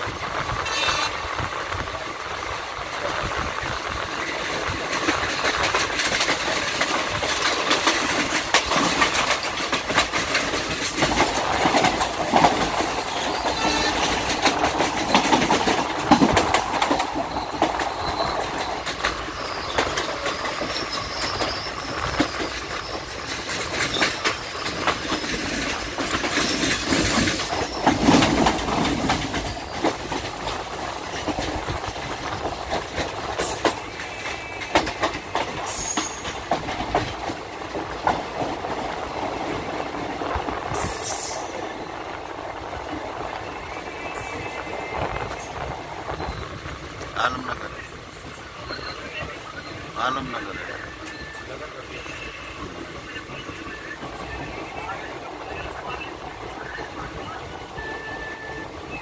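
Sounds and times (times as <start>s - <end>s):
train wheels rumbling on track: 0.0s - 59.0s
rattles and clicks: 1.7s - 41.5s.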